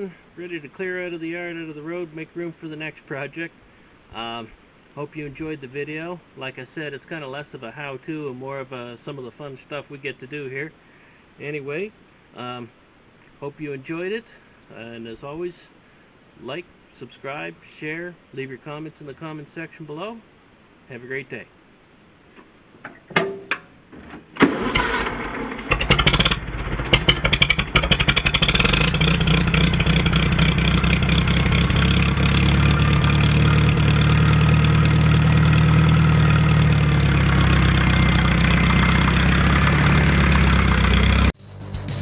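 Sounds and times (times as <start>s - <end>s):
tractor engine starting and running: 22.9s - 42.0s.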